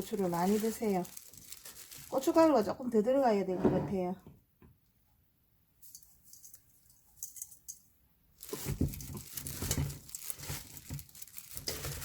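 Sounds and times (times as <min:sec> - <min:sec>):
hands tossing chives in a bowl: 0:00.0 - 0:02.6, 0:05.8 - 0:12.0.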